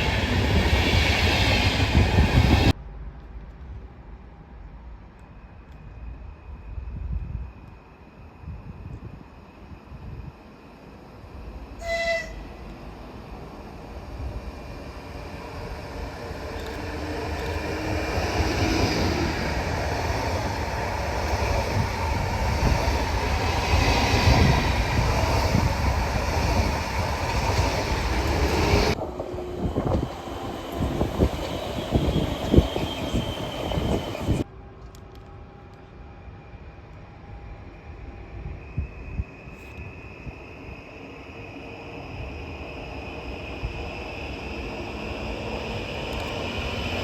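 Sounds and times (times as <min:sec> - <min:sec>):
train rumble and wheel noise: 0:00.0 - 0:47.0
train horn blast: 0:11.8 - 0:12.6.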